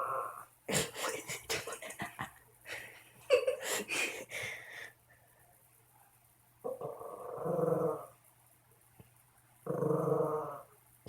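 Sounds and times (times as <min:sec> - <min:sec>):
dog growling low: 0:06.6 - 0:08.2, 0:09.6 - 0:10.7.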